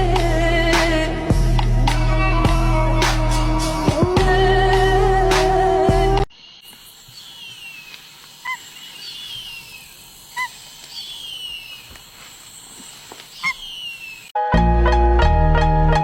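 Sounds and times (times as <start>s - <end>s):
falling bird whistles: 7.2s - 12.0s, 13.3s - 14.4s
sharp short bird calls: 7.2s - 12.0s, 13.3s - 14.3s.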